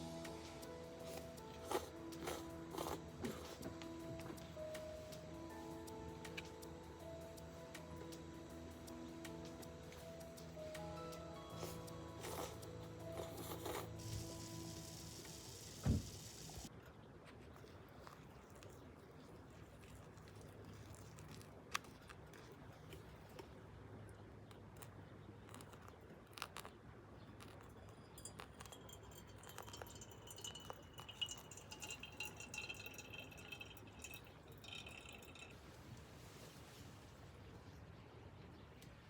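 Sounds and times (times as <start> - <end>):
small hard objects clinking: 0.0 - 3.7, 11.2 - 15.4, 27.4 - 35.6
thin high tone: 0.0 - 16.7.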